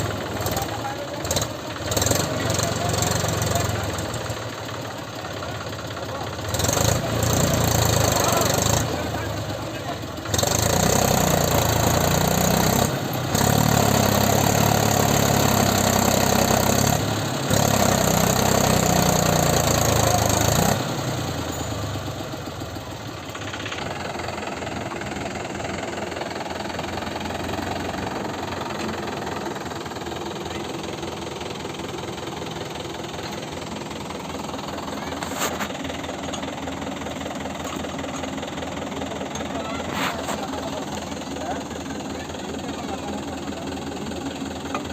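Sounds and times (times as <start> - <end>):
tractor diesel engine: 0.0 - 44.9.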